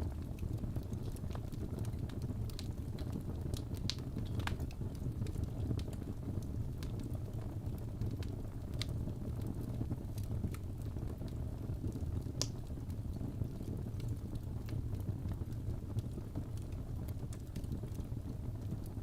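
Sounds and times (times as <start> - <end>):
low rush of flames: 0.0 - 19.0
wood fire crackling and popping: 0.0 - 19.0.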